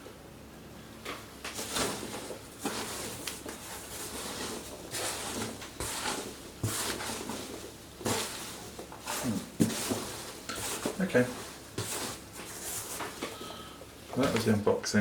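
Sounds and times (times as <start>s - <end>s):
packaging rustling: 1.5s - 13.4s.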